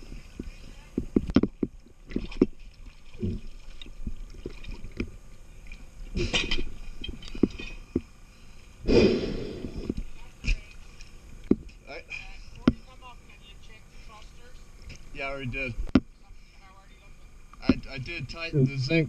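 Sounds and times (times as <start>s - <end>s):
sharp knocks and clicks: 1.0s - 2.6s.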